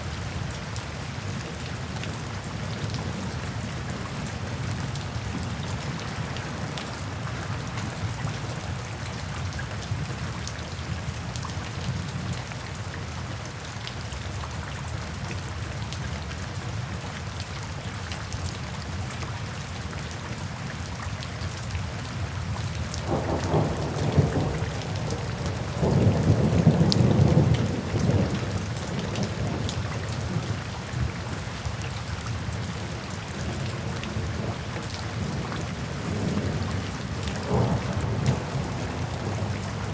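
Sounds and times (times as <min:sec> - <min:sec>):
steady rain falling: 0:00.0 - 0:39.9
thunder rumbling: 0:23.0 - 0:29.7, 0:35.8 - 0:39.9.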